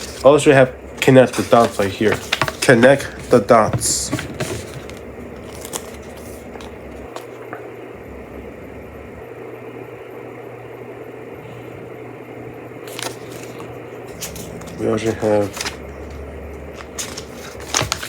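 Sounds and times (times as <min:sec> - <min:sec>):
paper book rustling: 0:00.0 - 0:07.4, 0:12.8 - 0:18.0
low room hum: 0:00.0 - 0:18.0.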